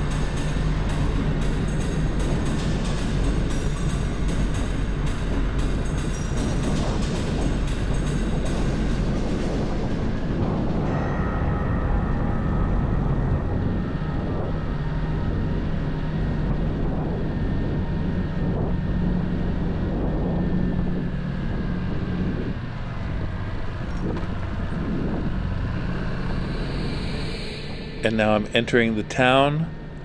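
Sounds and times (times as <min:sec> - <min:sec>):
motorcycle engine running: 0:19.0 - 0:27.9.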